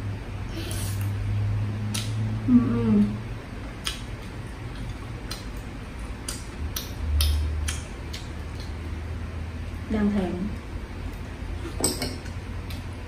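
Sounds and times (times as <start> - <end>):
person chewing: 3.8 - 9.0
wet mouth clicks: 4.8 - 8.8.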